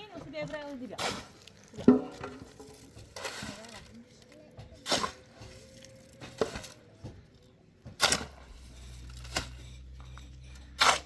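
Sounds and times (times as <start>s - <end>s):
hard objects knocking: 1.7s - 3.2s.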